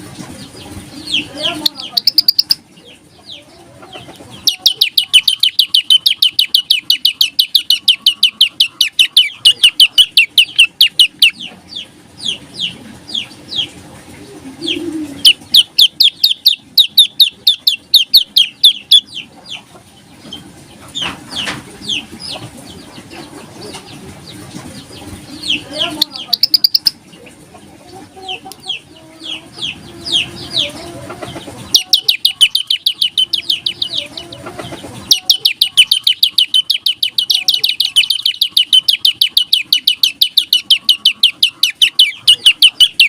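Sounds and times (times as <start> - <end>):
songbird trilling: 1.1 - 2.6, 4.4 - 11.5, 14.7 - 19.2, 25.4 - 27.0, 31.7 - 34.4, 35.0 - 43.0.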